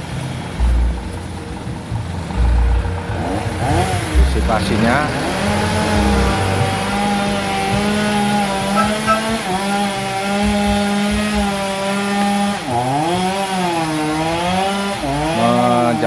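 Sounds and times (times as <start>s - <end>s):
chainsaw cutting wood: 4.9s - 16.0s.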